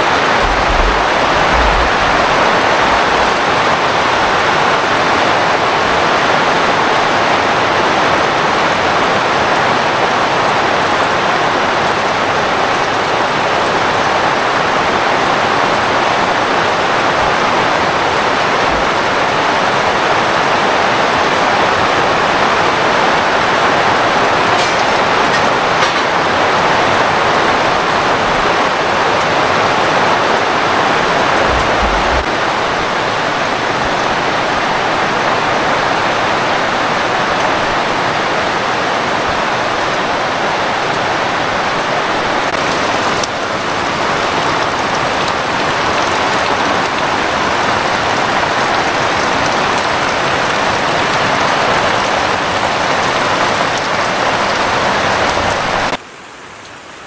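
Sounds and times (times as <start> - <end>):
low thumps: 0.0 - 4.2, 31.2 - 32.3
heavy rain falling: 0.0 - 57.0.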